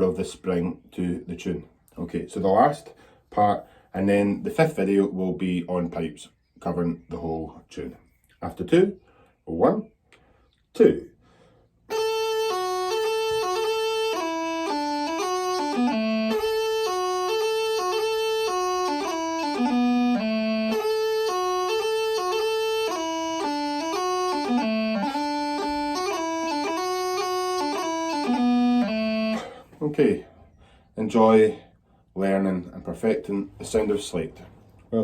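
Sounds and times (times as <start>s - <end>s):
bagpipe practice chanter melody: 11.9s - 29.8s.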